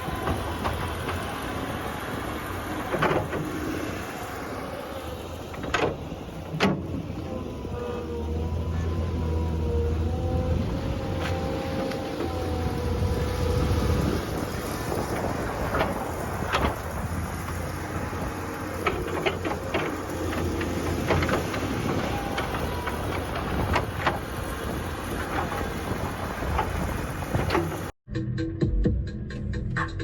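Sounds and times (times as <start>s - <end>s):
heavy machinery engine running: 0.0s - 28.0s
metallic knocks and clanks: 5.5s - 7.2s, 18.7s - 27.9s.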